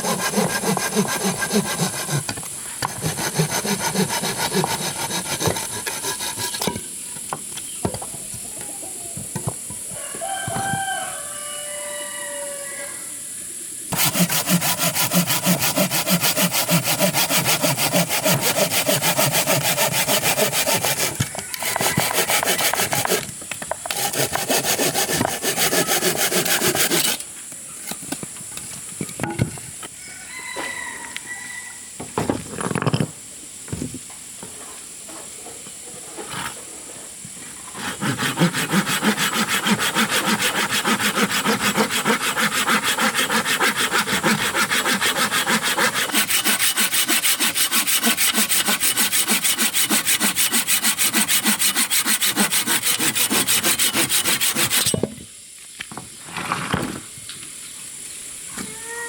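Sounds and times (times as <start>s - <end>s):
saw cutting through wood: 0.0s - 6.7s, 13.9s - 23.2s, 23.9s - 27.2s, 37.8s - 55.0s.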